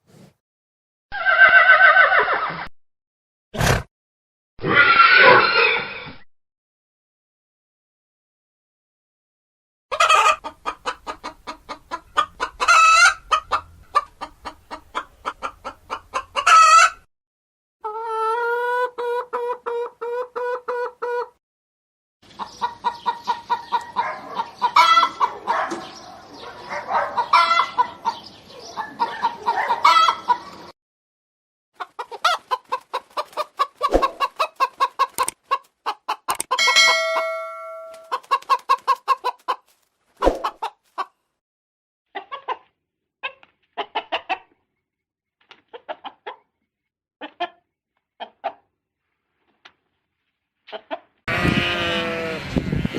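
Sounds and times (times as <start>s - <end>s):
chickens clucking: 9.9s - 17.1s, 17.8s - 21.4s, 22.2s - 30.8s, 31.8s - 41.2s, 42.1s - 44.7s, 45.6s - 46.5s, 47.2s - 48.7s, 50.7s - 51.6s.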